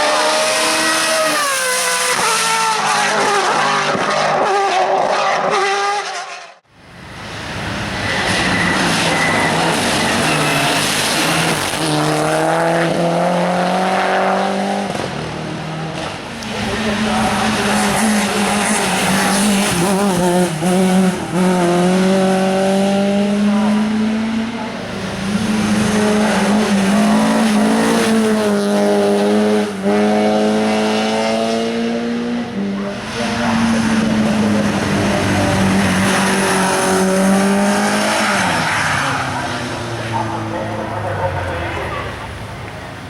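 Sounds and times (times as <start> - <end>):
race car engine accelerating: 7.2 - 42.7.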